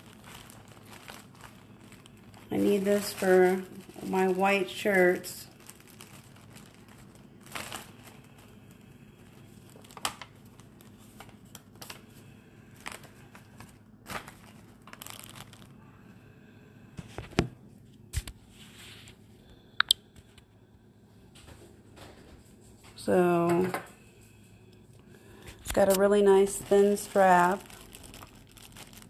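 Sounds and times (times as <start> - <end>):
plastic packaging crinkling: 0.0 - 15.8, 24.9 - 29.0.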